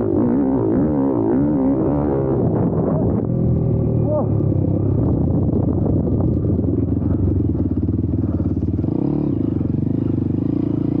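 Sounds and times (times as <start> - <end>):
motorbike engine running under throttle: 2.7 - 11.0.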